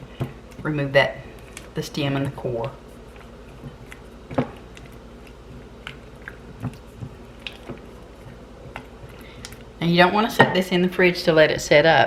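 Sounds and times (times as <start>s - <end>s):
spoon stirring wet mixture: 0.0s - 10.6s.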